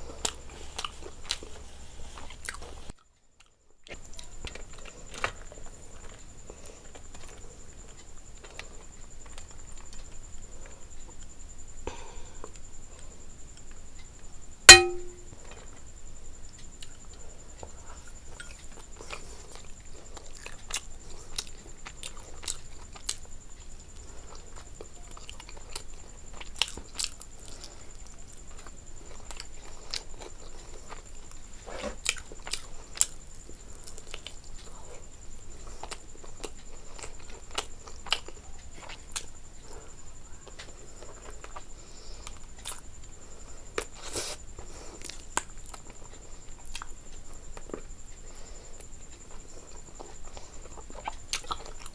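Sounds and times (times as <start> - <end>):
person chewing food: 49.3 - 51.9.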